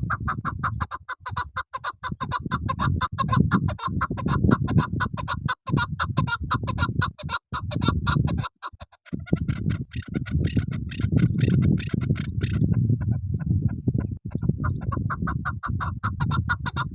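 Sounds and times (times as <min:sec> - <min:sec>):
partridge clucking calls: 0:00.0 - 0:16.9
dense low rumble: 0:09.2 - 0:15.1.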